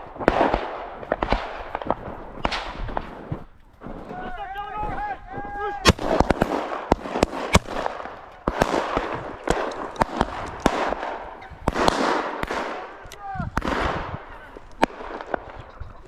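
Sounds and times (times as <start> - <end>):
dry grass rustling underfoot: 1.0 - 16.0.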